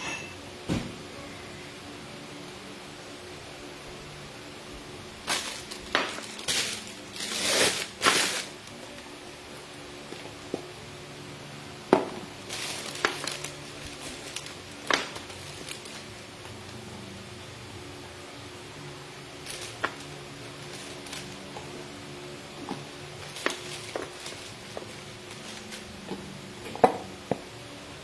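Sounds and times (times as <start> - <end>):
packaging rustling: 5.3 - 9.0, 12.4 - 16.6, 19.4 - 21.9, 22.5 - 26.3
crackles: 5.3 - 9.1, 12.4 - 16.8, 19.4 - 26.8.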